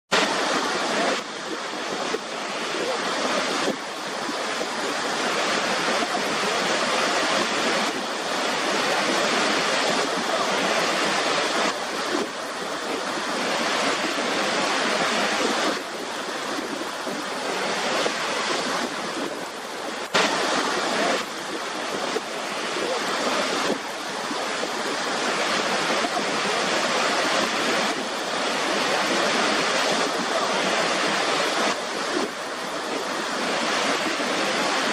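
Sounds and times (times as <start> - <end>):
river water rushing: 0.1 - 34.9.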